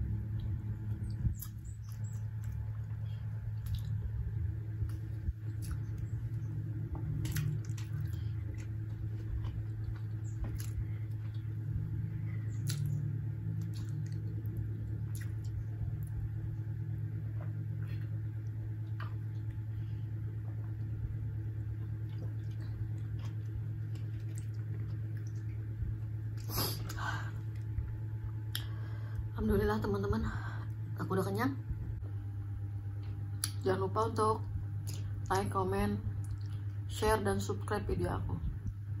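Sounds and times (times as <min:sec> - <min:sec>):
steady low hum: 0:00.0 - 0:39.0
wet mouth clicks and smacks: 0:12.5 - 0:14.3, 0:28.5 - 0:28.7, 0:36.2 - 0:36.7.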